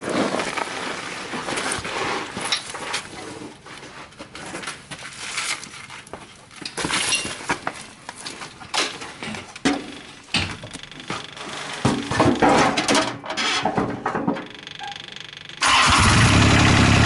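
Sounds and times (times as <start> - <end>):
tractor running: 9.8 - 17.0.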